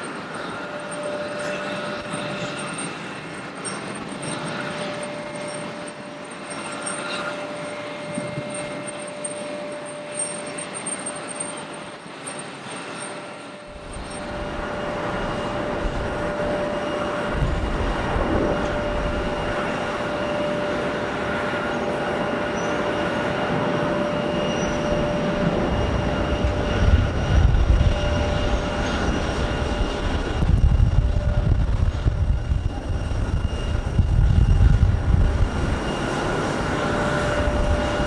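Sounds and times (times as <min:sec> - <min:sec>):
jet engines whining: 0:00.0 - 0:38.0
deep rumble: 0:25.7 - 0:35.8.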